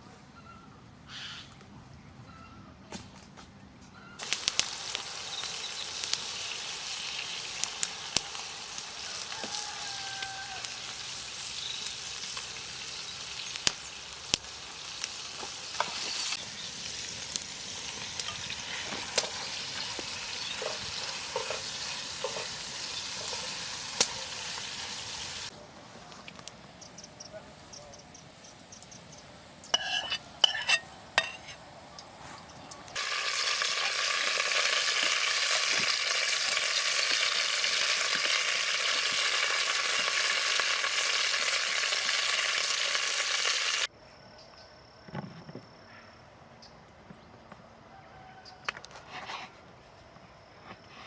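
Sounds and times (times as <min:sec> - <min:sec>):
crackles and pops: 0:04.2 - 0:24.8, 0:32.0 - 0:43.9
food sizzling in a pan: 0:04.2 - 0:25.5, 0:29.7 - 0:31.6, 0:33.0 - 0:43.9.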